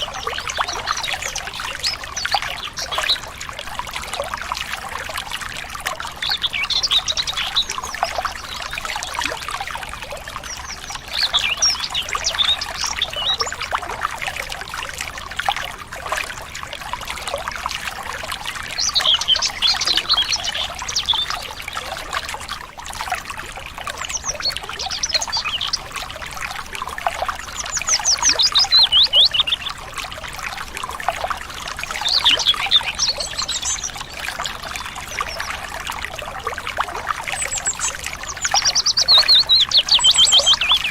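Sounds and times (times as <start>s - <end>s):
songbirds chirping: 0.0s - 16.4s, 17.2s - 40.9s
water trickling: 0.0s - 40.9s
bird trill: 37.5s - 40.9s.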